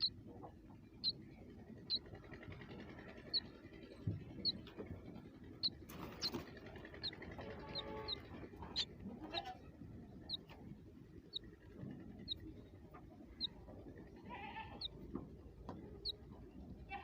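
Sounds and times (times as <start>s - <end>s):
bird chirping: 4.4s - 4.8s, 5.6s - 8.9s.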